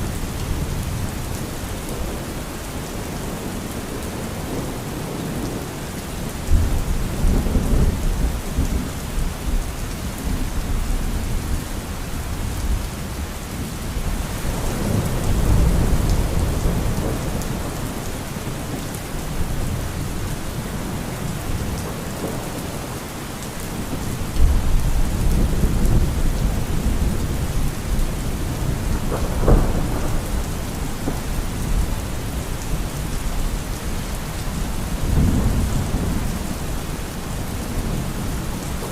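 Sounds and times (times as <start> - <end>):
heavy rain hissing: 0.0 - 38.9
low thunder rumbling: 23.7 - 38.9
sharp thunderclap: 28.4 - 31.8.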